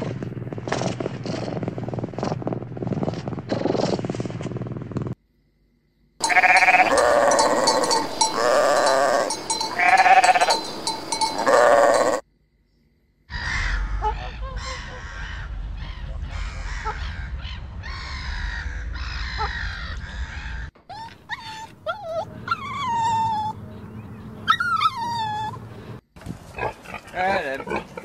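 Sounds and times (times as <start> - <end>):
sheep bleating: 6.2 - 12.2.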